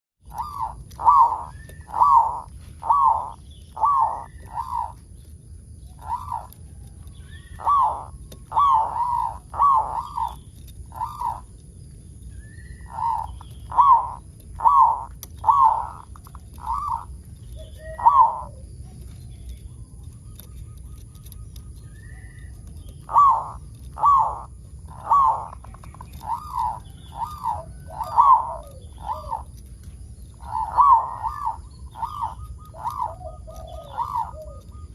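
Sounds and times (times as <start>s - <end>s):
dove cooing: 0.2s - 34.9s.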